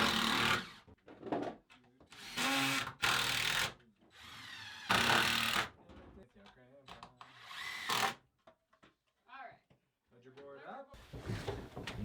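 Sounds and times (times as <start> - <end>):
power drill bursts: 0.0 - 0.8, 2.2 - 5.7, 7.4 - 8.2.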